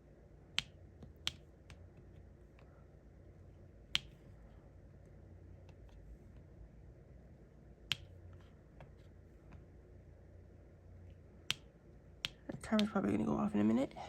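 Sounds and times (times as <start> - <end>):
pen tapping clicks: 0.6 - 1.8, 3.9 - 4.2, 7.9 - 8.9, 11.4 - 13.0.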